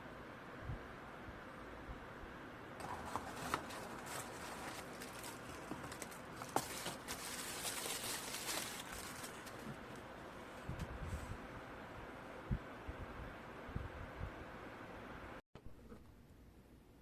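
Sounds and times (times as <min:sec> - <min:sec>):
soft rustling: 0:02.8 - 0:11.3.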